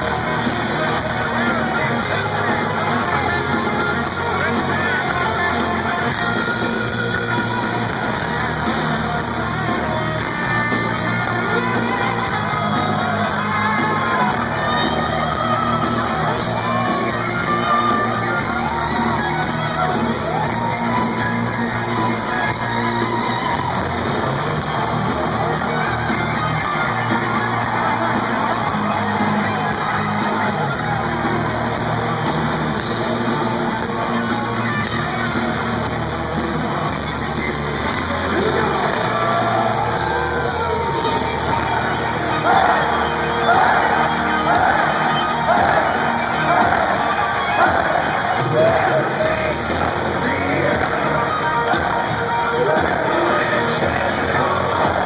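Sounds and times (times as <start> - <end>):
crowd yelling: 0.0 - 55.0
electric guitars: 0.0 - 55.0
heavy metal band playing live: 0.0 - 55.0
singing: 37.4 - 55.0.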